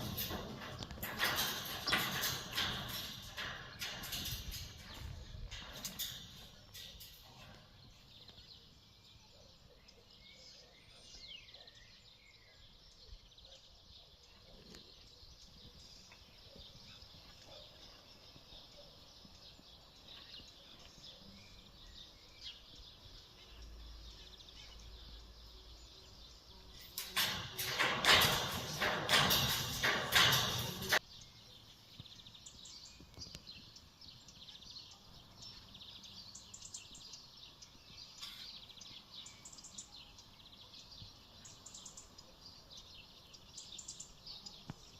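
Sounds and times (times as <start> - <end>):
clicks and clatter: 0.0 - 8.0, 26.8 - 31.0.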